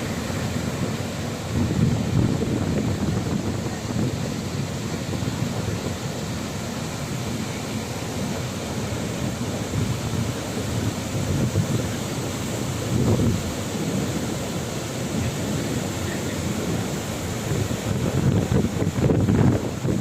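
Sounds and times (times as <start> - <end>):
ocean surf washing in: 0.0 - 20.0
wind on microphone: 0.0 - 20.0.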